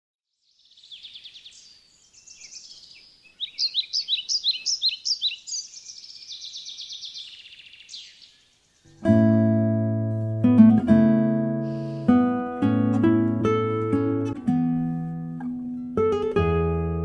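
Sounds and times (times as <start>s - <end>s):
birdsong trills and chirps: 0.4s - 9.0s.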